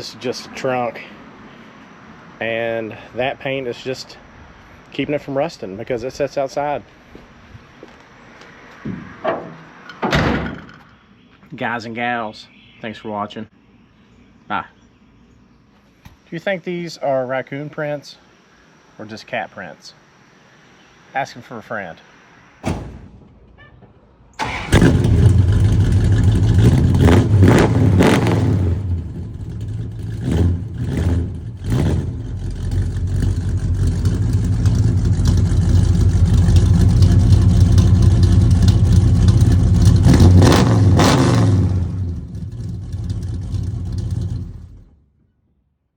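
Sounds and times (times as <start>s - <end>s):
car engine revving: 24.4s - 45.0s.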